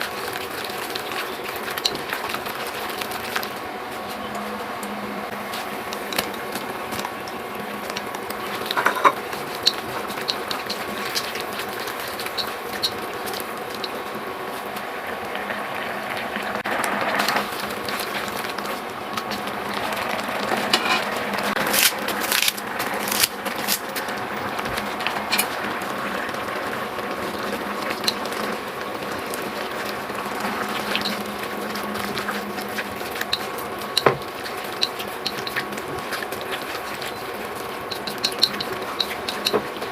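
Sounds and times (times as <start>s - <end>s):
food sizzling in a pan: 4.4s - 39.9s
utensil clinking and scraping pan: 8.4s - 14.0s, 19.8s - 21.6s.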